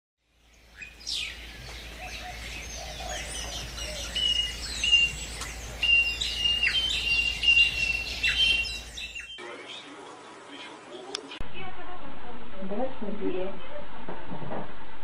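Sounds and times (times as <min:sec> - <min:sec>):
birds chirping: 0:00.2 - 0:11.4
steady low hum: 0:00.5 - 0:09.4.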